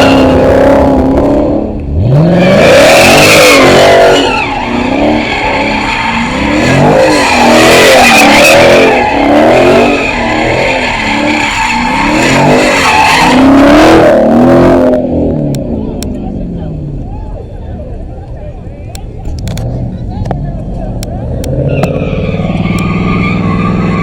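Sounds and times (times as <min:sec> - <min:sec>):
tyres squealing and skidding: 0:00.0 - 0:01.1, 0:02.0 - 0:14.7, 0:19.5 - 0:24.0
car engine revving: 0:00.0 - 0:24.0.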